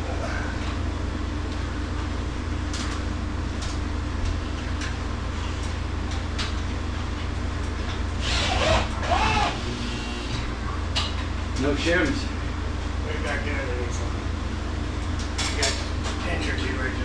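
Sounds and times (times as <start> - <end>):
refrigeration machine hum: 0.0 - 17.0.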